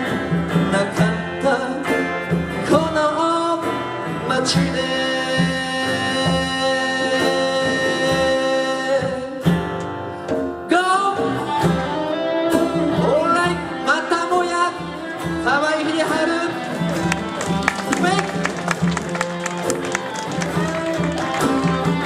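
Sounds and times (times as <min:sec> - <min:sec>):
guitar accompaniment: 0:00.0 - 0:22.0
sliding instrumental melody: 0:10.4 - 0:22.0.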